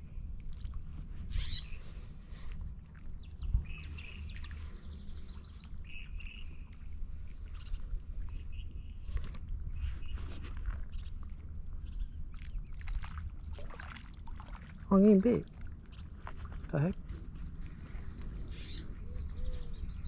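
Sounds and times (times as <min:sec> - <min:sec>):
wind rumbling on microphone: 0:00.0 - 0:20.0
short bird calls: 0:01.3 - 0:01.8.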